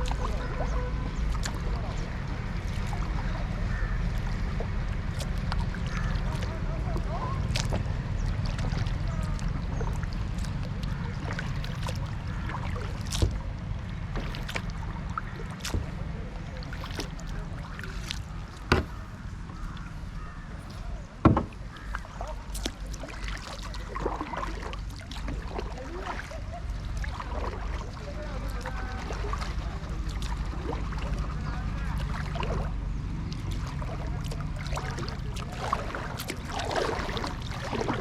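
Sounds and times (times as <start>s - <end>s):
low rumble: 0.0s - 38.0s
water splashing around kayak: 0.0s - 38.0s
sharp knocks: 18.7s - 19.1s, 21.2s - 21.6s.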